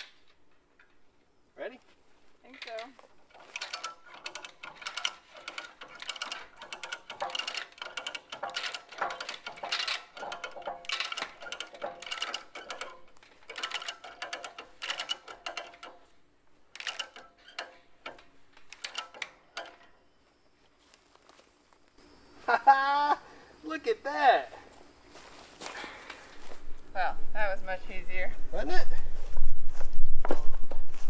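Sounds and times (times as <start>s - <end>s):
hand ratchet clicking: 2.7s - 20.0s.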